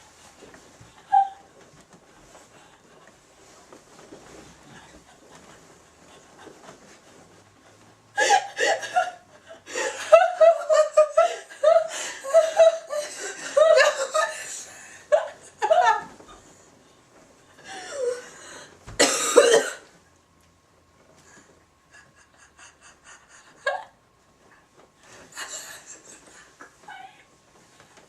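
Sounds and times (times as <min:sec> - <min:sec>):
person laughing: 0:08.2 - 0:16.2
person coughing: 0:19.0 - 0:19.9.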